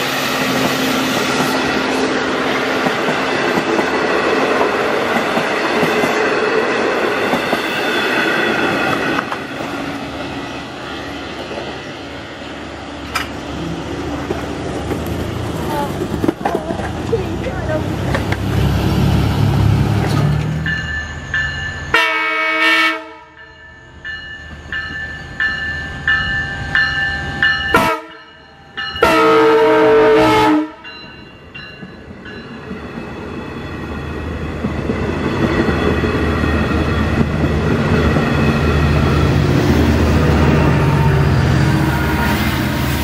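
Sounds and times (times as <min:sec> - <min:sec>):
diesel train rumble: 0:00.0 - 0:43.0
crossing bell dinging: 0:20.5 - 0:34.6
train horn blasts: 0:21.9 - 0:23.4, 0:27.7 - 0:28.3, 0:29.0 - 0:30.9, 0:40.1 - 0:42.7.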